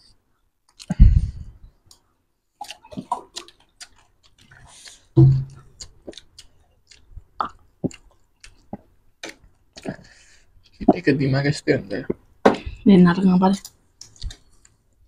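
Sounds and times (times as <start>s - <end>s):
wet mouth smacks: 2.6s - 9.9s
chewing crunchy snacks: 2.6s - 10.0s
low thump: 5.2s - 5.6s.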